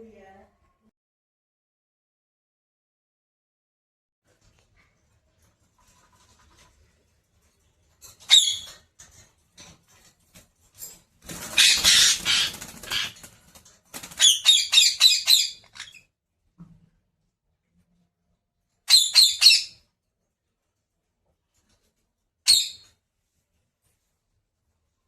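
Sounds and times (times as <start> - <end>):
parrot calling and screeching: 8.2 - 8.8, 11.5 - 13.2, 14.1 - 16.0, 18.9 - 19.8.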